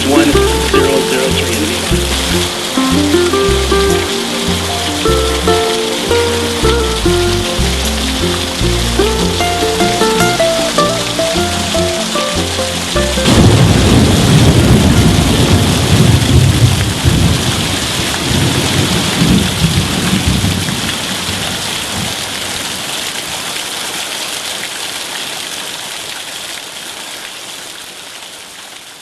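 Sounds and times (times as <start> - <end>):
heavy rain: 0.0 - 29.0
low thunder rumble: 13.0 - 22.4.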